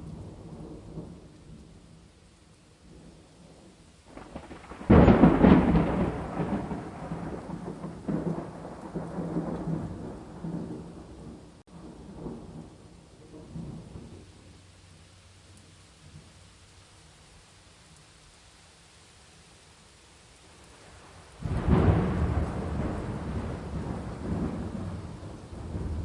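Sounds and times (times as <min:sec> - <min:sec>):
steady rain: 0:00.0 - 0:26.0
thunderclap and rumbles: 0:02.8 - 0:14.4, 0:21.4 - 0:26.0.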